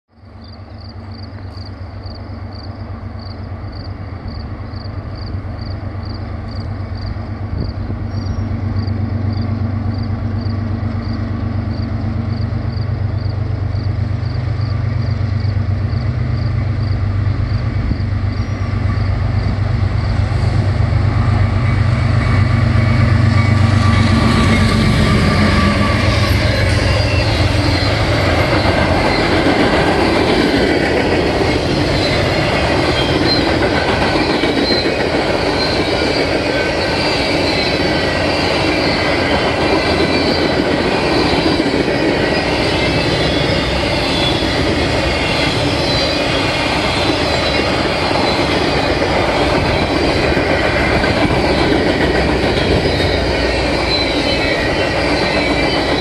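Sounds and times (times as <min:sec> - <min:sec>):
diesel locomotive engine drone: 0:00.1 - 0:56.0
train wheel and rail noise: 0:00.1 - 0:56.0.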